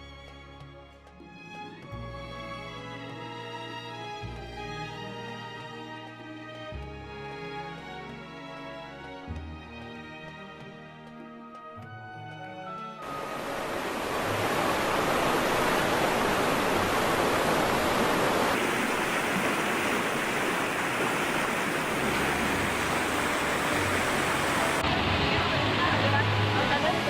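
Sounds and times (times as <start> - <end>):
music track: 0.0 - 14.3
rushing water: 13.0 - 27.0.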